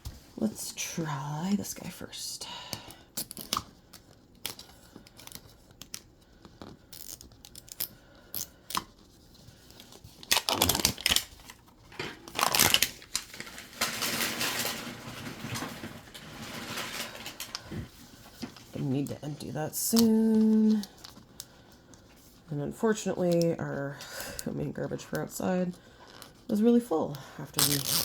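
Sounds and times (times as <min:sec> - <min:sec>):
plastic wrapping crinkling: 0:03.2 - 0:22.4, 0:27.4 - 0:28.0.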